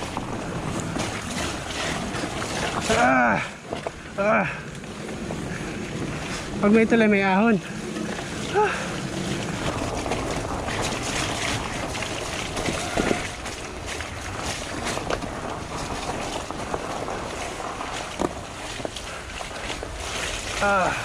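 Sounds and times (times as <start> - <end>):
bike knocks and rattles: 0.0 - 21.0
bike running on dirt trail: 0.0 - 21.0
wind buffeting microphone: 0.0 - 21.0.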